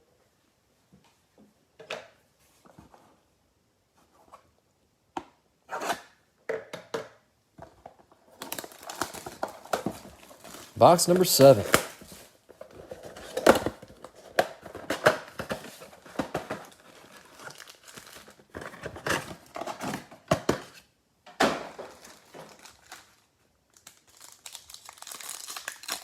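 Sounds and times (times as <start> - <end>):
packaging crinkling: 8.3 - 20.1, 21.7 - 26.0
packaging ripping: 8.4 - 20.1, 21.9 - 26.0.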